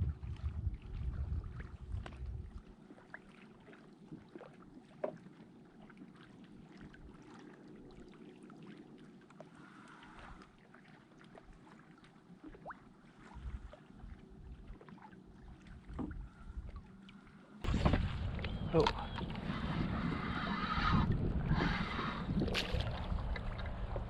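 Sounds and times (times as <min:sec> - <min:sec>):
wind rumbling on microphone: 0:00.0 - 0:02.7, 0:15.8 - 0:16.9, 0:17.6 - 0:24.0
water lapping: 0:00.0 - 0:24.0.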